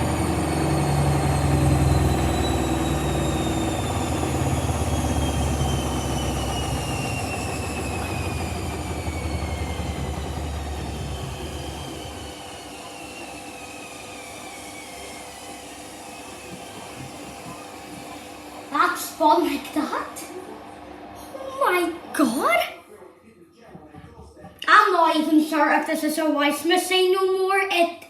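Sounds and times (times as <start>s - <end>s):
washing machine drum rumble: 0.0s - 14.6s
washing machine motor whine: 0.0s - 22.9s.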